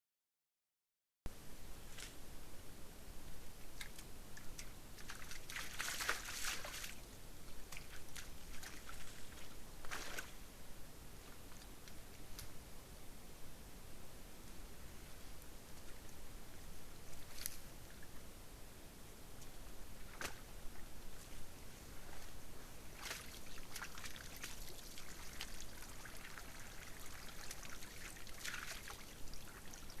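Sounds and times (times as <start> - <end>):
small splashes: 5.0 - 7.0, 7.7 - 10.4, 23.0 - 30.0
water sloshing: 22.9 - 30.0.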